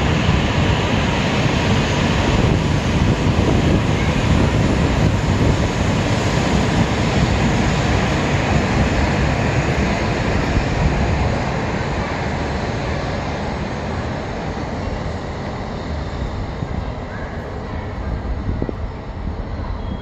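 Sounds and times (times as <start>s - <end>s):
high-speed train rushing past: 0.0s - 20.0s.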